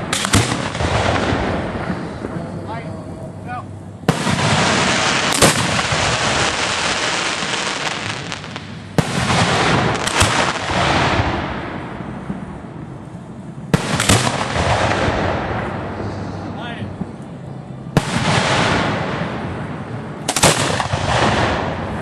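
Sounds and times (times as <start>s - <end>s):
firework launches: 0.0s - 2.6s, 4.0s - 12.6s, 13.7s - 16.2s, 17.9s - 22.0s
firework crack: 0.0s - 22.0s
firework hissing rush: 4.1s - 11.6s.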